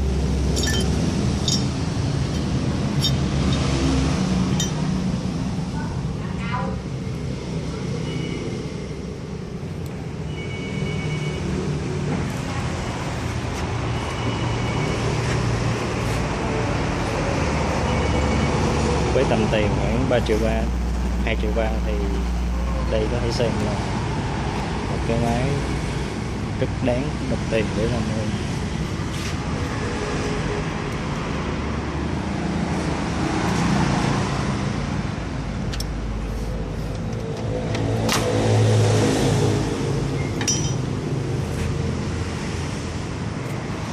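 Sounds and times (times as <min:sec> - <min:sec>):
road traffic noise: 0:00.0 - 0:43.9.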